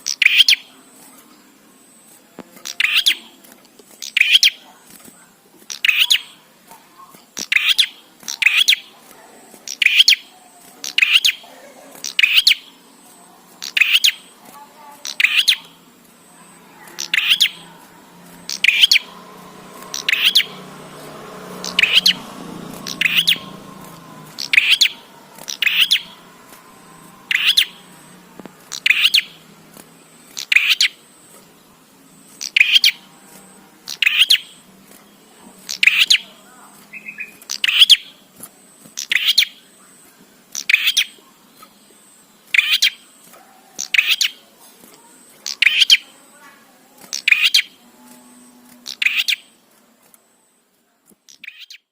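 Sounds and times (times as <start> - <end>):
bird double chirps: 15.0 - 15.8, 19.9 - 20.6, 22.8 - 23.6, 24.3 - 26.2, 27.2 - 28.0.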